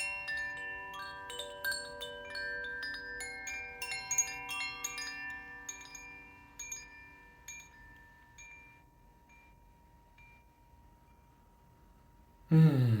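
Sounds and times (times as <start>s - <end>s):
wind chime ringing: 0.0s - 11.8s.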